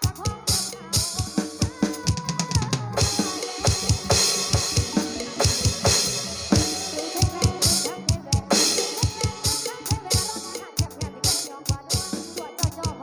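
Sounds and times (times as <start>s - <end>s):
melody line: 3.0s - 9.8s
cymbals: 3.0s - 10.7s.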